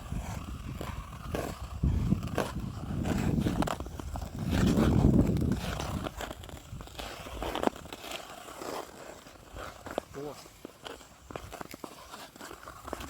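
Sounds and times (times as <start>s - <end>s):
wind rumbling on microphone: 0.0s - 7.9s
skate blades scraping on ice: 0.0s - 13.0s.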